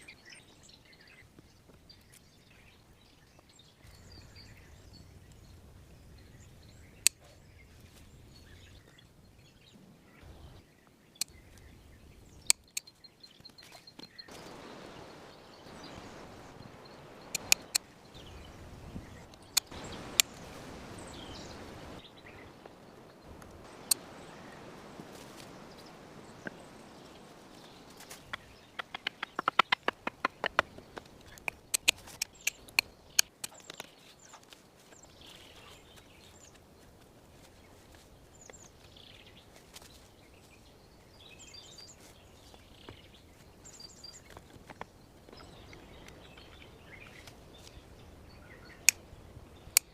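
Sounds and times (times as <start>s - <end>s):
faint bird chirp: 0.0s - 49.9s
rustling: 13.4s - 40.6s
sharp snaps and knocks: 17.3s - 17.8s, 28.0s - 34.6s.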